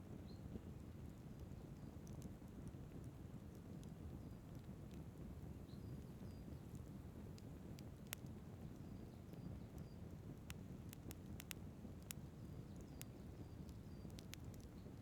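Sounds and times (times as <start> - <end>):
wood fire crackling and popping: 10.3 - 15.0.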